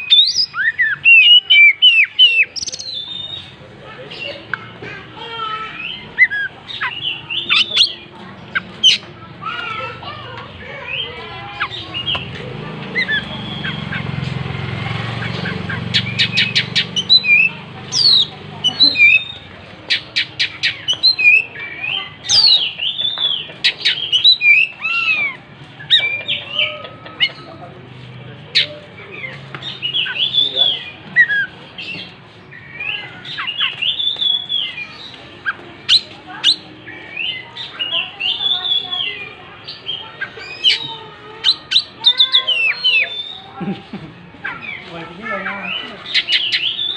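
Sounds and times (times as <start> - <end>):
bird chirps and whistles: 0.0 - 3.4, 33.3 - 36.6.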